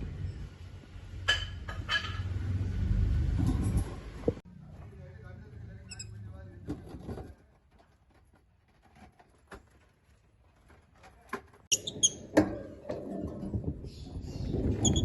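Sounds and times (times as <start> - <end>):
birds chirping squeakily: 13.9 - 15.0.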